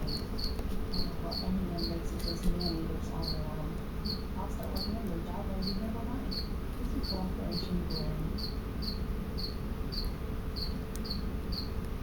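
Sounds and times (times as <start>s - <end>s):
cricket chirping: 0.0s - 2.0s, 5.6s - 11.7s.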